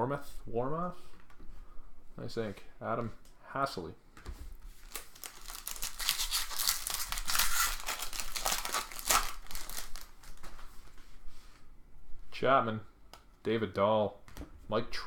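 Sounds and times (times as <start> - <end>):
wrapper crinkling and tearing: 4.8 - 10.6.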